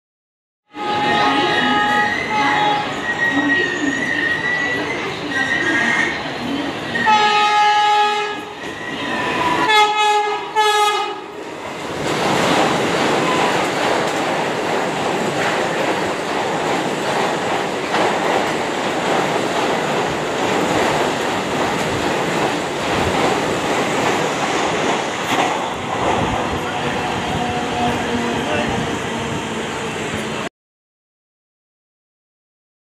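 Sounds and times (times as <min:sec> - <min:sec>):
train horn blasts: 0:00.7 - 0:03.0, 0:07.0 - 0:08.6, 0:09.4 - 0:11.3, 0:26.6 - 0:28.3
train rushing on rails: 0:00.7 - 0:30.5.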